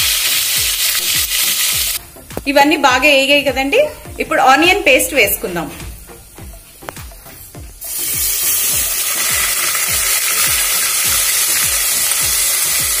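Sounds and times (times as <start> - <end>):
paste sizzling in hot oil: 0.0 - 2.2, 5.0 - 13.0.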